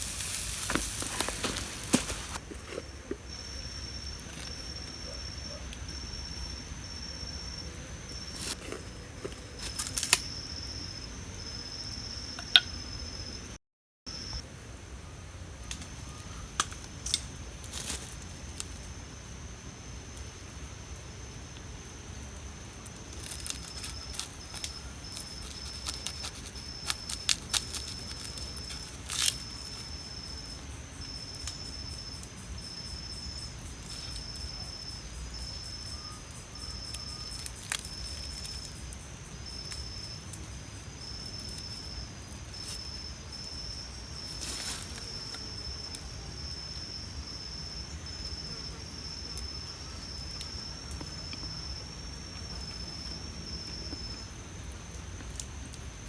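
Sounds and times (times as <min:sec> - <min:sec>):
insect pulsing call: 0:00.0 - 0:02.4, 0:03.3 - 0:08.6, 0:22.1 - 0:54.7
sharp crackles and clicks: 0:00.0 - 0:02.4, 0:22.8 - 0:29.9
crickets trilling: 0:00.0 - 0:56.0.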